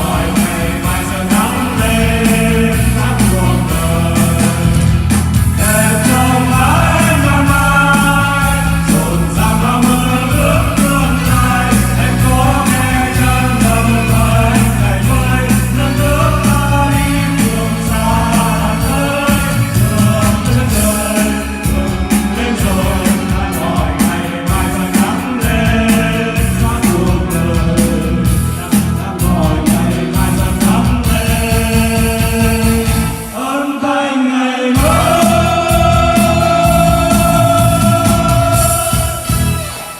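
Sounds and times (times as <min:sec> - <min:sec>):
drum beat: 0:00.0 - 0:33.4, 0:34.8 - 0:39.9
steady bass: 0:00.0 - 0:33.4, 0:34.8 - 0:39.9
band accompaniment: 0:00.0 - 0:33.8, 0:34.6 - 0:39.9
person singing: 0:00.0 - 0:39.9.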